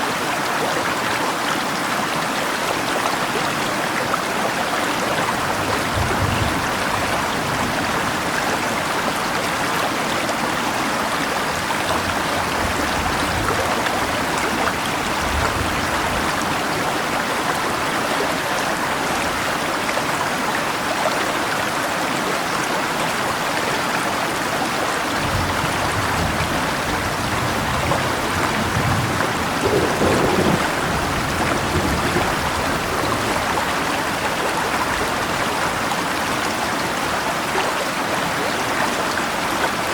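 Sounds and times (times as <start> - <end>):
rain falling: 0.0 - 22.0, 22.8 - 39.9
river rushing: 0.0 - 39.9
low rumbles: 28.5 - 33.4.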